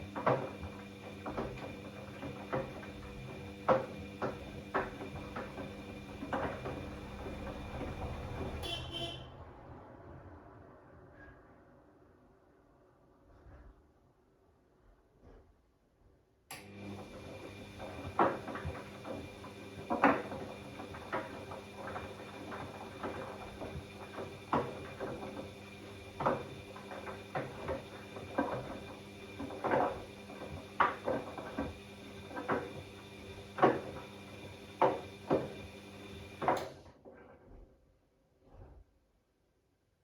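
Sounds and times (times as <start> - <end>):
laundry thudding and sloshing in drum: 0.0 - 8.6, 17.1 - 36.6
washing machine motor hum: 0.0 - 9.2, 16.6 - 36.8.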